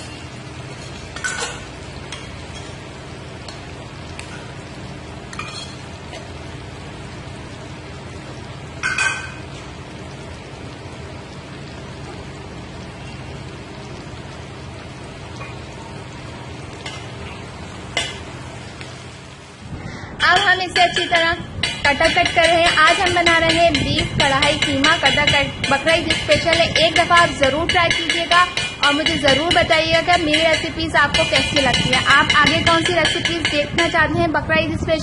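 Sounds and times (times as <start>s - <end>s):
food sizzling in oil: 0.0s - 19.6s, 20.2s - 34.0s
metal spoon clinking on pan: 5.3s - 5.8s, 8.8s - 9.4s, 20.2s - 33.7s.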